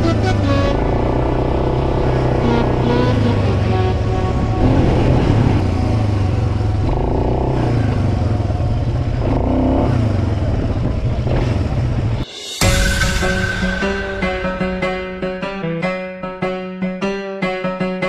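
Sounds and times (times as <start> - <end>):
off-road vehicle engine revving: 0.0 - 12.2.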